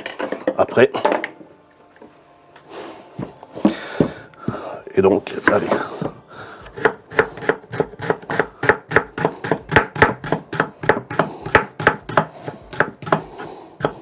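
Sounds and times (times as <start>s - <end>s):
knife chopping on cutting board: 6.6s - 14.0s.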